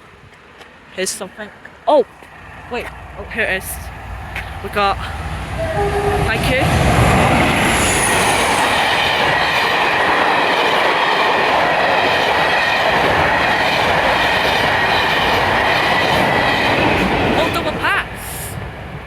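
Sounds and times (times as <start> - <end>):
train wheels rushing on rails: 2.2 - 19.0
thin high whine: 5.6 - 9.4.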